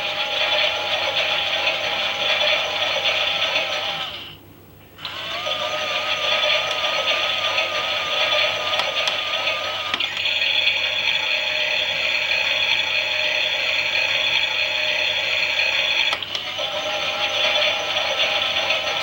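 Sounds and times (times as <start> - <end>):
toy washing machine motor whirring: 0.0 - 4.3, 5.0 - 19.0
toy washing machine clicks: 8.4 - 10.4, 15.8 - 16.5.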